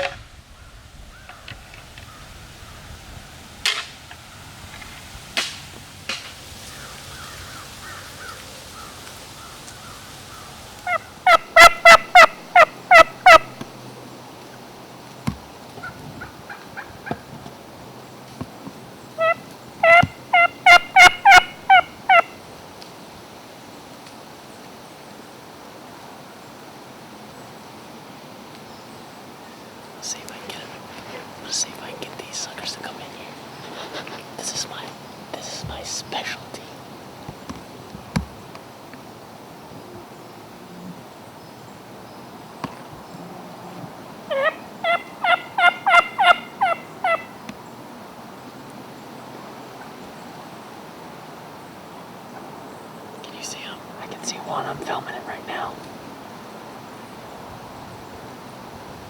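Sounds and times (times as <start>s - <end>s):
turkey yelping: 6.6s - 13.6s, 19.2s - 22.4s, 44.3s - 47.4s.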